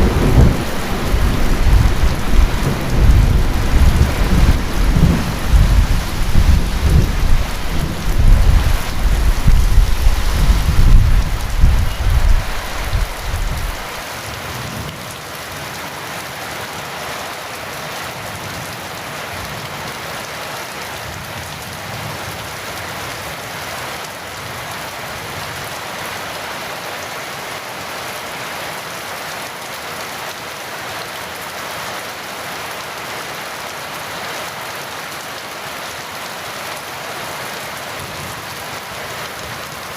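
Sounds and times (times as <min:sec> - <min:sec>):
thunder rumbling: 0:00.0 - 0:14.0
heavy rain falling: 0:00.0 - 0:39.9.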